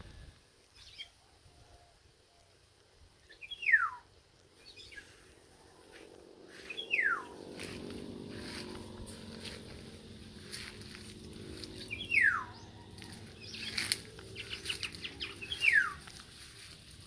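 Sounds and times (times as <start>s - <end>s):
faint low drone: 4.6s - 17.0s.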